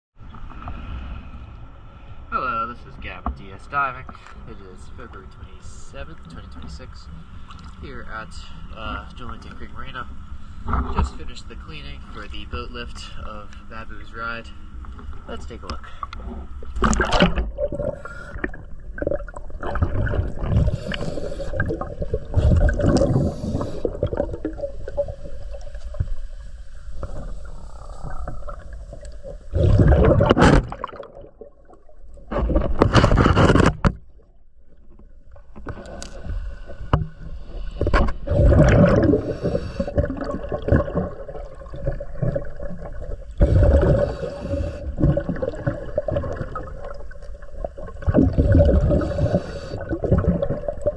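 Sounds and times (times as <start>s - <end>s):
gurgling exhaled bubbles: 15.6s - 26.3s, 27.0s - 33.3s, 35.6s - 50.9s
diver breathing through regulator: 17.8s - 18.7s, 20.2s - 24.2s, 35.7s - 40.2s, 43.4s - 45.2s, 48.2s - 50.1s
scrapes and knocks: 32.3s - 34.0s.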